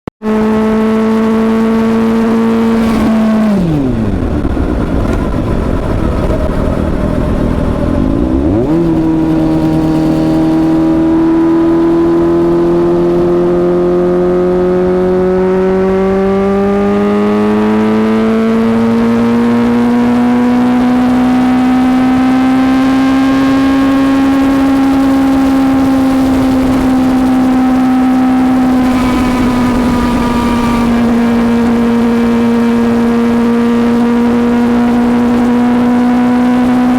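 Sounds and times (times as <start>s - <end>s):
motorcycle engine revving: 0.2s - 36.9s.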